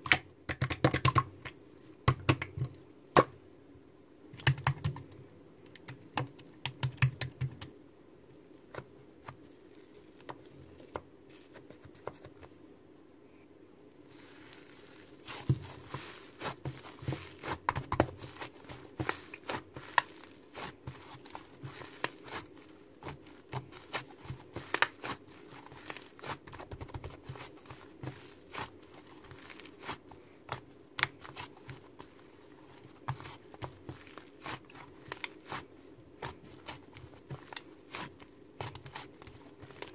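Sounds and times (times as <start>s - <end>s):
slime popping and crackling: 14.1s - 39.9s.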